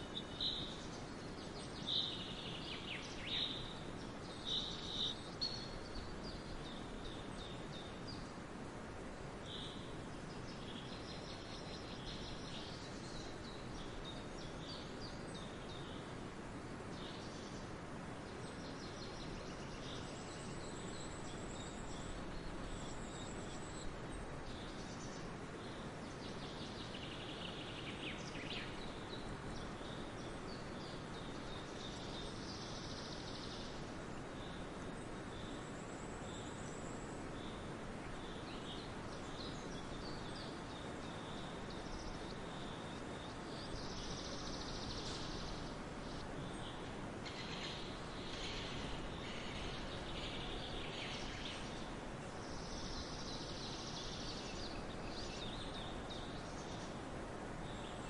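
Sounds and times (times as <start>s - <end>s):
birds chirping: 0.0s - 58.0s
steady background hiss: 0.0s - 58.0s.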